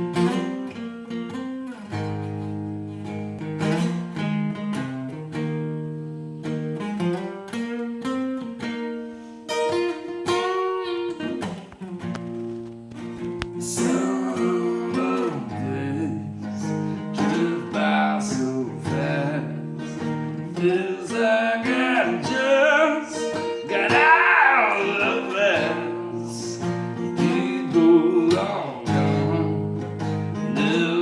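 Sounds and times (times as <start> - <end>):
strummed acoustic guitar: 0.0 - 31.0
man singing: 13.6 - 31.0.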